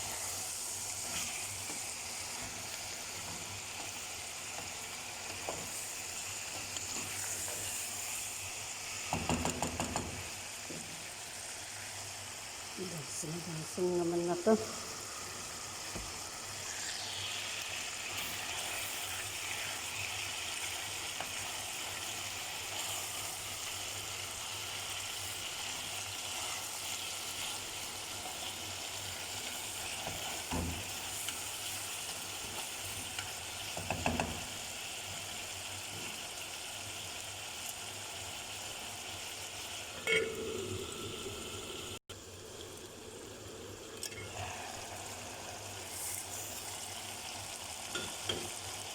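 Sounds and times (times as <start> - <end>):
food sizzling in a pan: 0.0 - 48.9
utensil knocking a pan: 9.1 - 10.2, 33.8 - 34.4.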